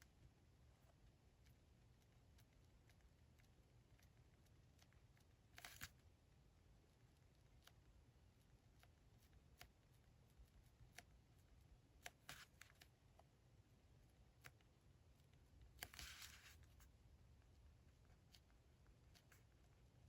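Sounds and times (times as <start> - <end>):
small ticks: 0.0 - 13.3
paper rustling: 15.8 - 16.8.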